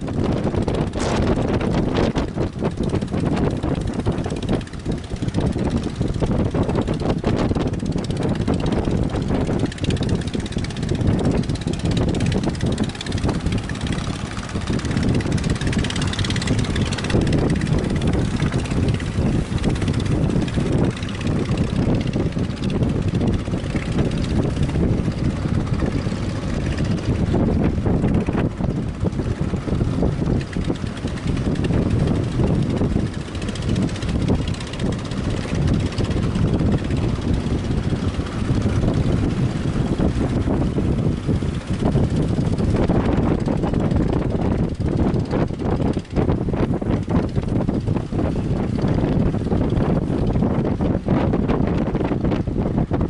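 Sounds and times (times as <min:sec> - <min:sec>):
boat engine drone: 0:00.0 - 0:53.0
wind buffeting microphone: 0:00.0 - 0:53.0.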